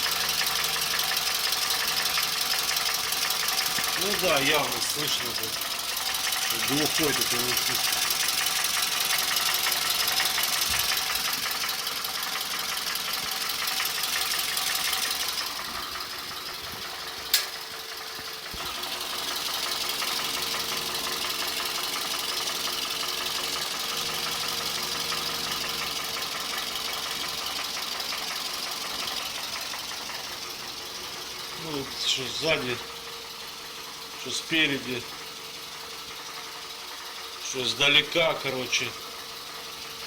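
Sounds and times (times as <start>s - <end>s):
car engine idling: 0.0s - 40.0s
sharp click: 17.3s - 17.6s.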